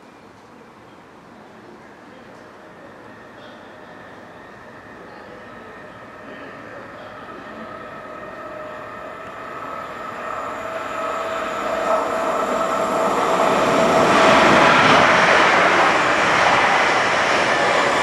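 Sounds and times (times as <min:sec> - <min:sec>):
train approaching: 0:00.0 - 0:18.0
steady whine: 0:02.2 - 0:18.0
broad rushing noise: 0:05.7 - 0:18.0.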